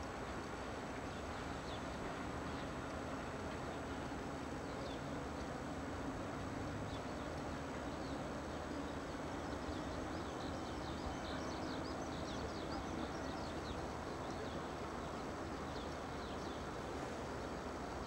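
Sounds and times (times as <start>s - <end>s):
electric train rumbling: 0.0s - 18.0s.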